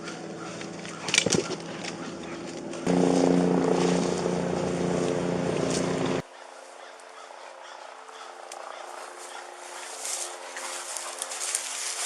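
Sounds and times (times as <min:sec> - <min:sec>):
helicopter engine and rotor drone: 0:00.0 - 0:06.2.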